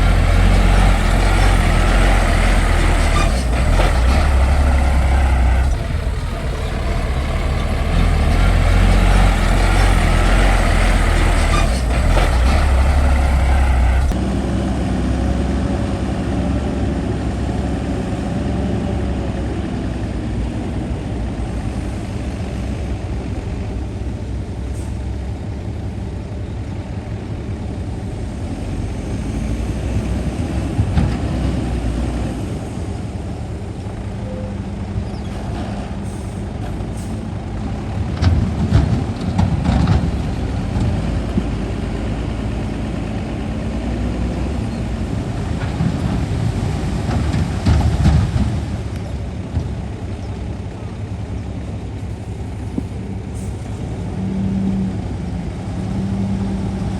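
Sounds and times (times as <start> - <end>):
heavy diesel engines under load: 0.0 - 56.9.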